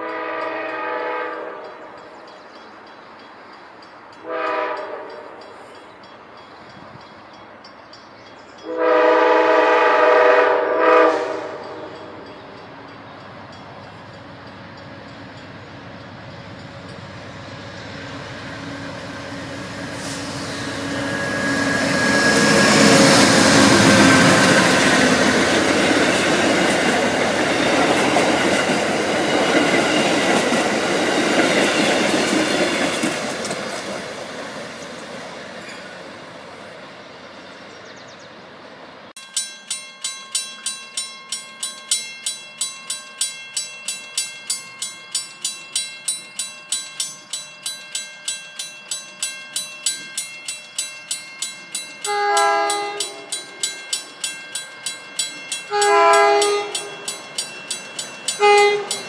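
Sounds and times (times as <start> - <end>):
train horn blast: 0.0 - 1.8, 4.2 - 5.5, 8.7 - 12.2, 52.0 - 53.3, 55.7 - 56.9, 58.4 - 59.0
crossing bell dinging: 0.0 - 34.7, 39.2 - 59.0
passenger train rumbling past: 0.0 - 59.0.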